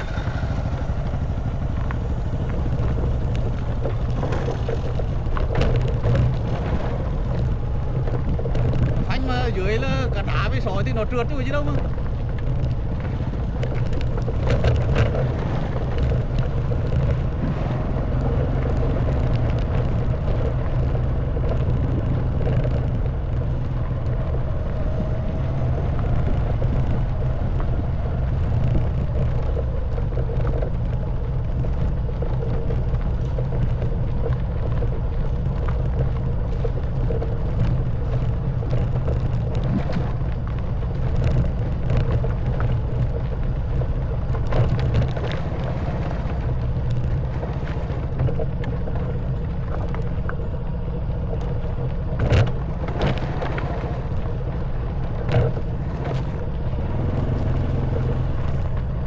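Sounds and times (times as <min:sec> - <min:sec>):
motorcycle engine running: 0:00.0 - 0:59.0
motorcycle knocking and rattling: 0:00.0 - 0:59.0.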